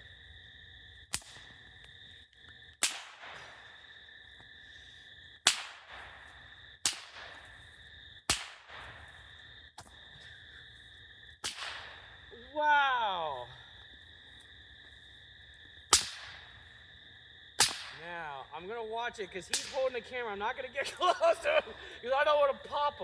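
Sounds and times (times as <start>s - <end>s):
whip cracking: 1.1s - 1.5s, 2.8s - 3.7s, 5.5s - 7.6s, 8.3s - 9.1s, 11.4s - 12.0s, 15.9s - 16.5s, 17.6s - 18.1s, 19.5s - 20.0s.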